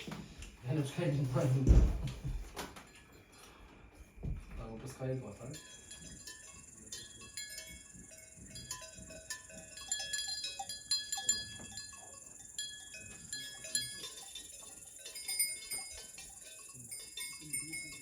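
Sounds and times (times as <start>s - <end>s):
livestock bells clinking: 2.4s - 18.0s
insects chirring: 4.2s - 18.0s.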